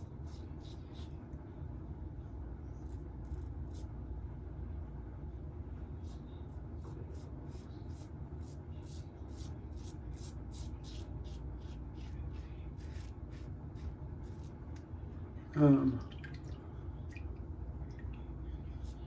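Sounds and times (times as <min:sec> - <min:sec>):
razor scratching lathered face: 0:00.0 - 0:01.2, 0:02.8 - 0:03.9, 0:06.0 - 0:14.6, 0:18.7 - 0:19.0
low room hum: 0:00.0 - 0:19.0.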